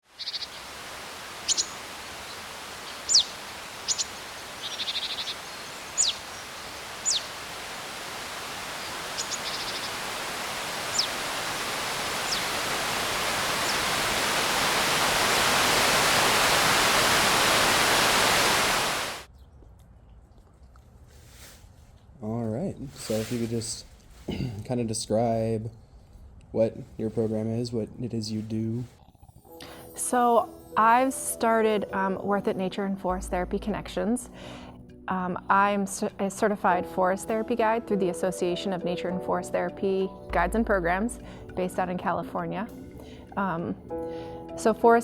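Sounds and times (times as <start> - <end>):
songbirds calling: 0.0 - 16.3
steady rushing hiss: 0.1 - 19.3.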